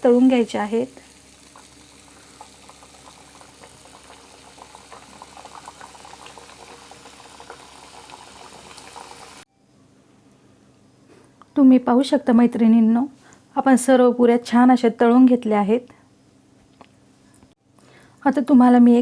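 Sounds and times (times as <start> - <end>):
food sizzling in hot oil: 0.0 - 9.4.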